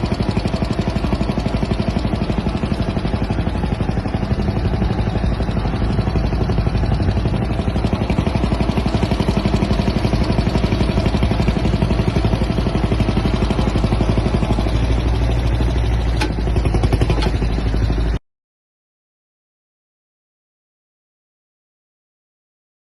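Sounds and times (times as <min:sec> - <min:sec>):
old engine chugging: 0:00.0 - 0:18.2.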